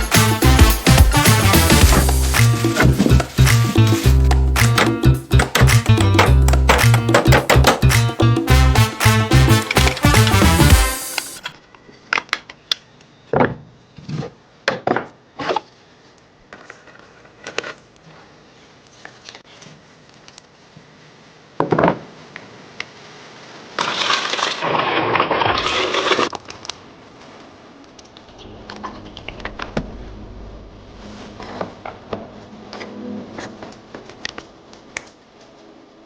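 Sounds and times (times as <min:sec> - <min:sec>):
harsh rasping noise: 0:00.0 - 0:11.5.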